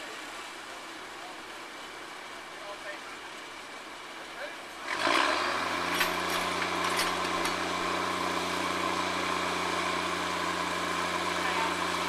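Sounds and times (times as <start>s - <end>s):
truck engine idling: 5.6s - 12.0s.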